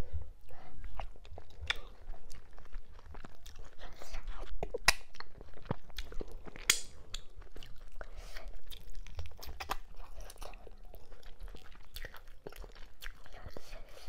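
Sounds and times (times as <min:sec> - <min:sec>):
person chewing and biting: 0:00.5 - 0:14.0
mouth clicks: 0:06.0 - 0:07.3.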